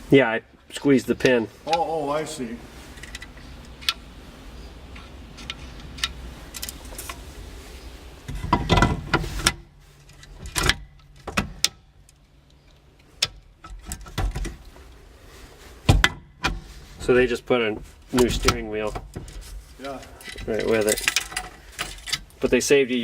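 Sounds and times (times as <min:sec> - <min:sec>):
metallic clicks and knocks: 0:18.2 - 0:22.6.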